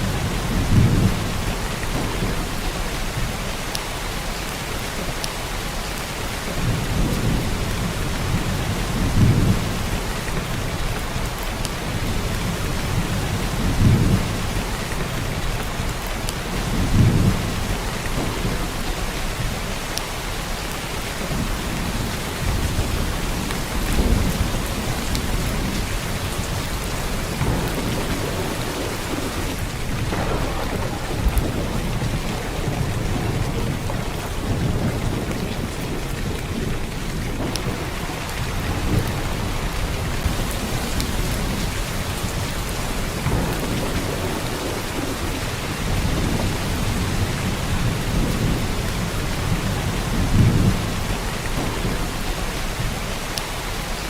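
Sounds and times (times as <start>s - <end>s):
heavy rain downpour: 0.0s - 54.0s.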